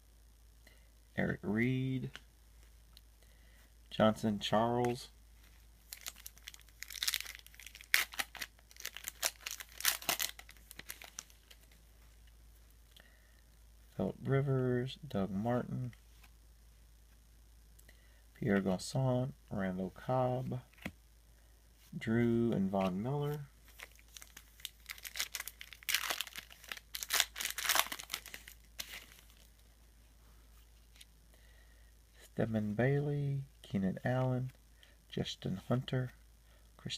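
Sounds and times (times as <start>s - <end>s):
card packaging crinkling: 5.9s - 11.8s, 22.8s - 29.7s
cards flipping and snapping: 20.8s - 21.0s.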